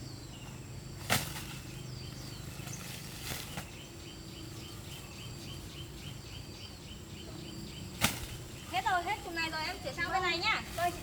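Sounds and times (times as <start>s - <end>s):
bird chirping: 0.0s - 11.0s
sharp thud of coconut caught: 8.0s - 8.3s.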